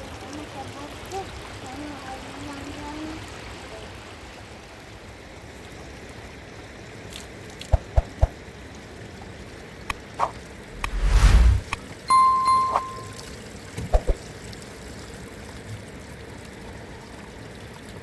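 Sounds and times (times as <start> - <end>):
rushing noise with low rumble: 10.7 - 11.8.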